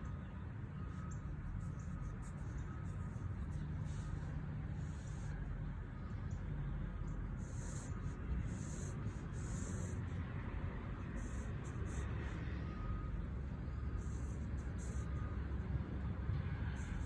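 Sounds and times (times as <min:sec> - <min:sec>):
pencil scratching on paper: 0:01.5 - 0:05.4, 0:07.4 - 0:12.4, 0:13.8 - 0:15.2, 0:16.8 - 0:17.0.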